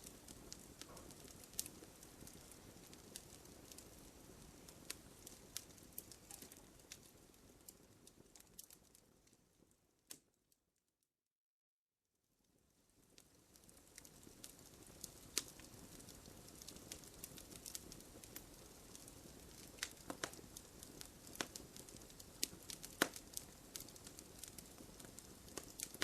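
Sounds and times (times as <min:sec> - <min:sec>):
low rush of flame: 0:00.0 - 0:09.4
wood fire crackling and popping: 0:00.0 - 0:10.4, 0:12.5 - 0:26.0.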